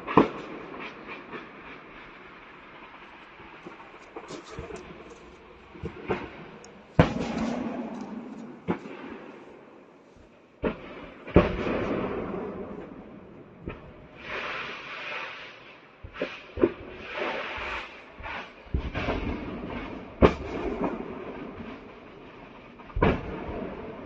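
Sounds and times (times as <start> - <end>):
explosive bangs: 3.5 - 9.8, 10.6 - 13.8.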